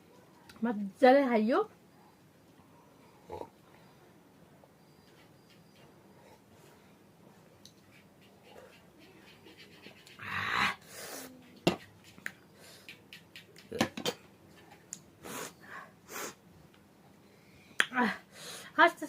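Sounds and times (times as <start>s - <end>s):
mouth clicks and smacks: 11.8s - 15.1s, 17.8s - 18.0s.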